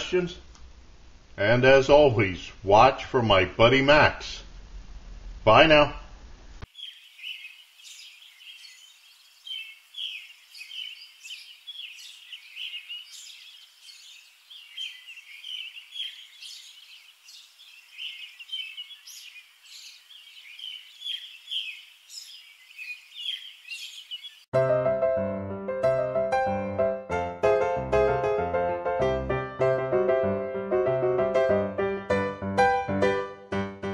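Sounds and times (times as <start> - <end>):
birds chirping: 6.6 - 24.5.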